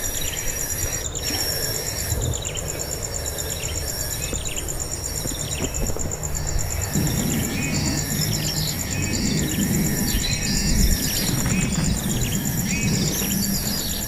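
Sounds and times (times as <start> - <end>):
insects trilling: 0.0 - 14.0
low rumble: 6.1 - 14.0.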